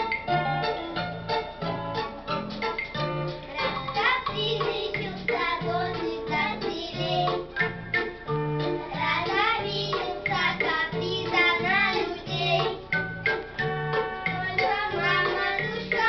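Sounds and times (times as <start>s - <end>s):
electronic keyboard accompaniment: 0.0s - 16.0s
children singing: 3.5s - 7.5s, 8.8s - 13.0s, 14.0s - 16.0s.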